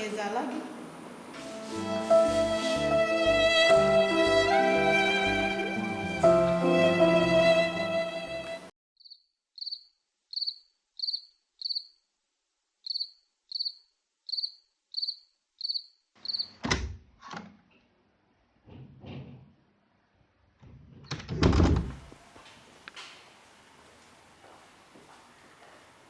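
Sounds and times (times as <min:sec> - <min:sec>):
violin music: 0:01.4 - 0:08.7
cricket chirping: 0:09.0 - 0:12.0, 0:12.8 - 0:16.6.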